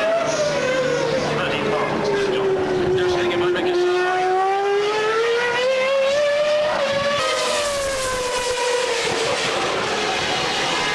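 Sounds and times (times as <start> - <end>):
racing car engine at high revs: 0.0 - 10.9.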